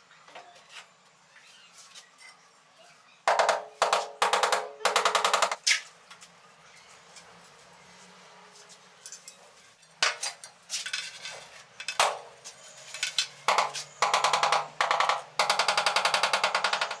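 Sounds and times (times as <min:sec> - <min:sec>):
rapid tapping rattle: 0:13.5 - 0:17.0.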